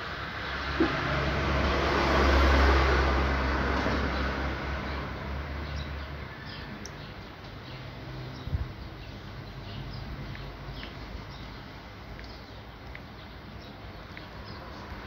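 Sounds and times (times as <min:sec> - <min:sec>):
small birds chirping: 0:03.9 - 0:15.0.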